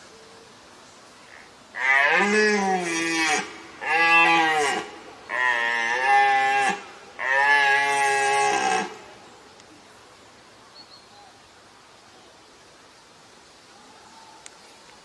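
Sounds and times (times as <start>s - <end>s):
deer stag roaring: 1.8s - 9.0s.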